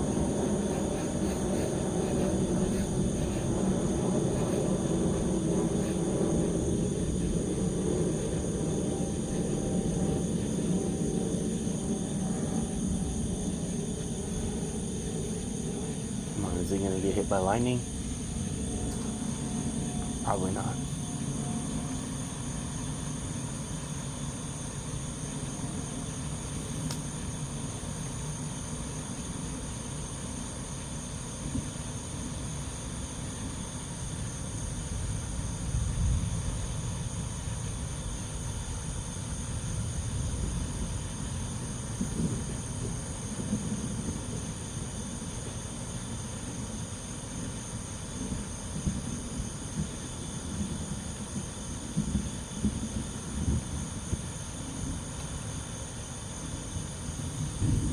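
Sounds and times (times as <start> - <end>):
distant thunder rumbling: 0.0 - 24.0, 57.4 - 57.9
night insects trilling: 0.0 - 57.9.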